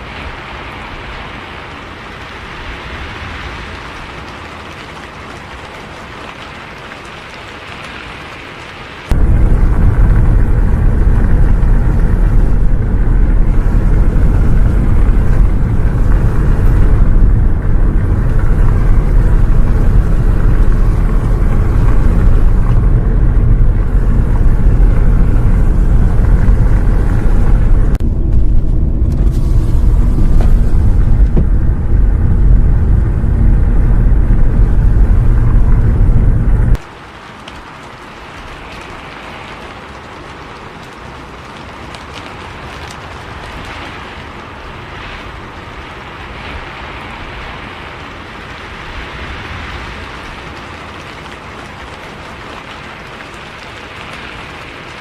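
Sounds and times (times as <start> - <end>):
bus engine and road noise: 0.0 - 36.9.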